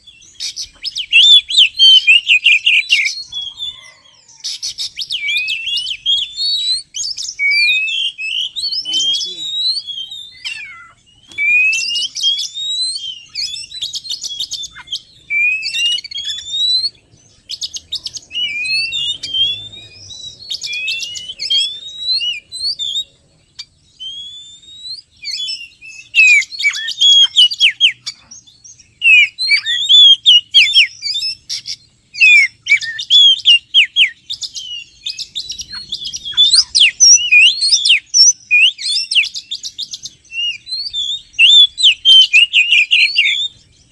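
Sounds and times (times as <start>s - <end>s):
songbird whistling song: 0.0s - 43.9s.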